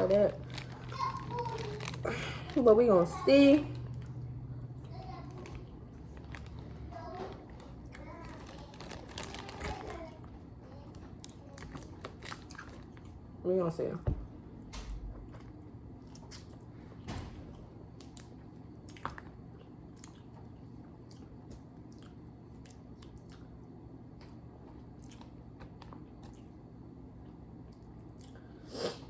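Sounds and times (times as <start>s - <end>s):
low steady hum: 0.0s - 29.0s
person chewing food: 11.0s - 13.2s, 15.1s - 29.0s.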